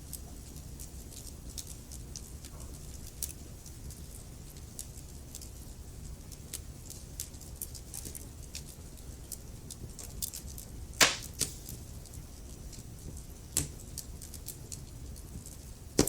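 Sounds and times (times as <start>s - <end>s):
fireplace fire crackling: 8.5s - 16.0s.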